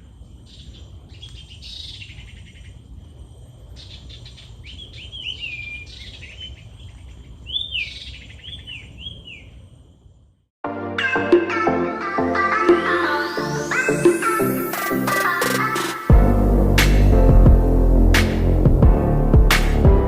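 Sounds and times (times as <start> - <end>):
birds chirping and trilling: 0.0 - 2.9, 3.8 - 9.9.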